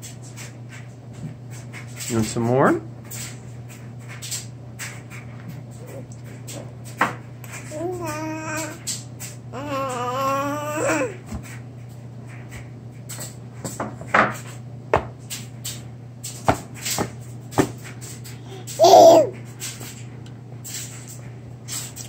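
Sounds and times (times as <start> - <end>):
steady low hum: 0.0 - 22.0
baby babbling: 7.7 - 8.8, 9.5 - 11.2, 18.4 - 19.4.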